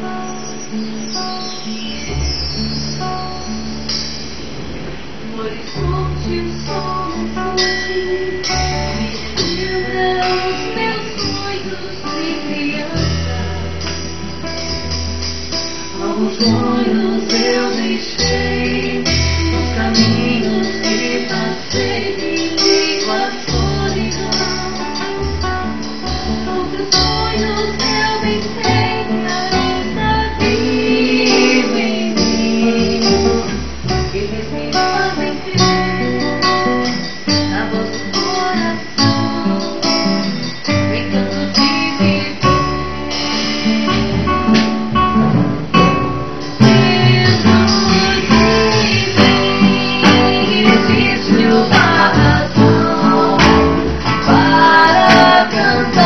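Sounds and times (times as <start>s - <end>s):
bass line: 0.0s - 56.0s
strummed acoustic guitar: 14.6s - 56.0s
person singing: 16.0s - 25.3s, 26.4s - 36.4s, 46.6s - 56.0s.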